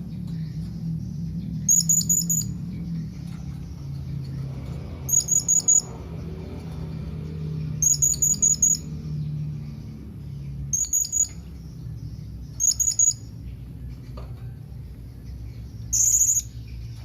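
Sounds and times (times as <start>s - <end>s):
parrot shrill high-pitched calls: 1.7s - 2.6s, 7.8s - 8.9s, 10.7s - 11.4s, 12.6s - 13.3s, 15.9s - 16.6s.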